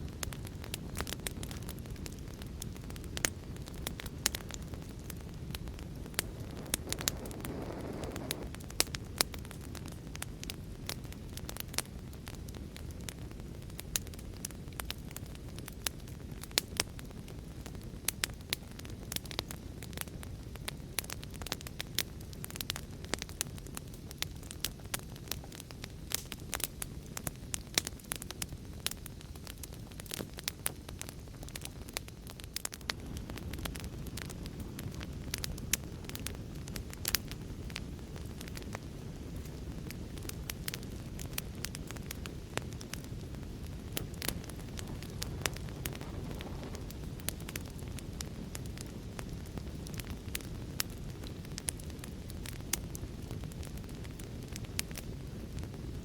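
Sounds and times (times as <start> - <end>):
hissing flame: 0.0 - 56.0
low rumble of burning: 0.0 - 56.0
wood fire pops and snaps: 0.1 - 56.0.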